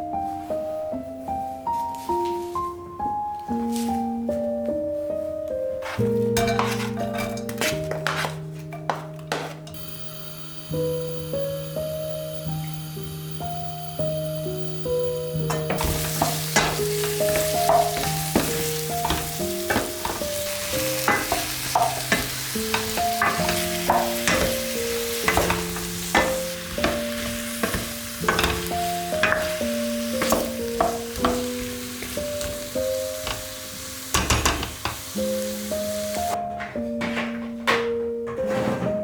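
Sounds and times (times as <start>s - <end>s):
slow melody of held notes: 8.4s - 34.2s
food sizzling in a pan: 9.7s - 36.4s.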